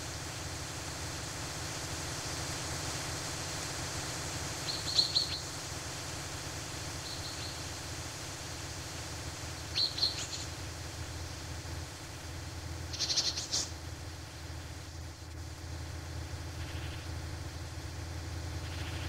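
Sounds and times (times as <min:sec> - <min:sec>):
background hiss: 0:00.0 - 0:19.0
songbirds chirping: 0:04.5 - 0:05.6, 0:06.9 - 0:07.9, 0:09.5 - 0:11.4, 0:12.9 - 0:15.4, 0:16.1 - 0:17.2.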